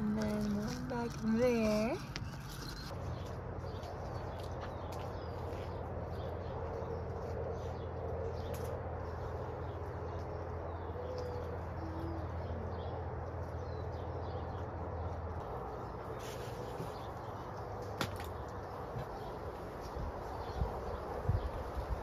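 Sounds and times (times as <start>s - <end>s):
steady low hum: 0.0s - 22.0s
low cooing bird calls: 5.2s - 15.1s.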